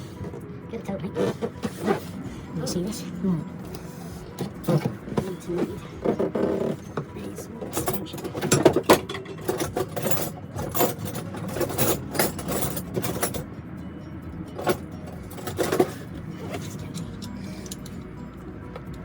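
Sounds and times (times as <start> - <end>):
metal hand tools clinking: 4.4 - 13.4, 14.5 - 18.2.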